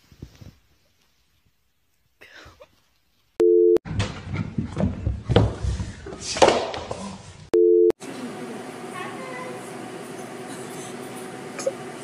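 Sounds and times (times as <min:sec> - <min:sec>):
rustling and bumping: 0:03.9 - 0:06.9.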